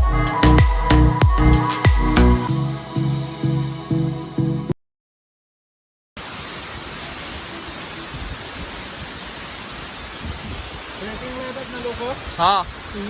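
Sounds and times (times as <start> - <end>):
electronic background music: 0.0 - 4.7
waterfall rushing: 6.2 - 13.0.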